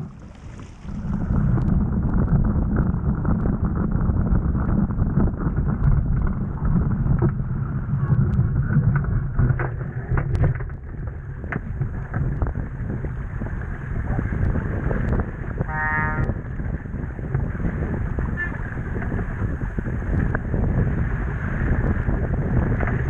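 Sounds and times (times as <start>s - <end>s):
water noise of sailing boat: 0.0s - 23.0s
wind buffeting microphone: 0.0s - 23.0s
small clicks and knocks: 8.3s - 12.6s.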